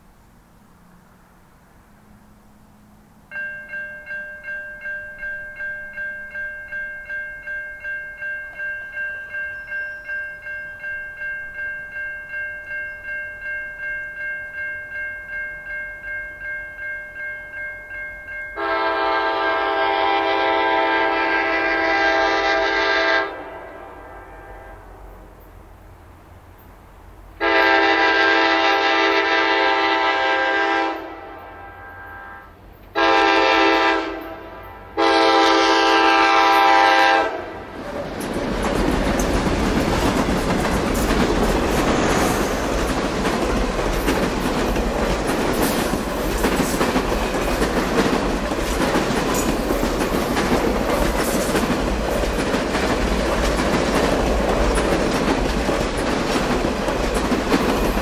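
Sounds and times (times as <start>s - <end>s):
train rumbling past: 0.0s - 58.0s
locomotive air horn chord: 18.6s - 25.0s, 27.4s - 37.7s
wheels clicking over rail joints: 37.7s - 58.0s.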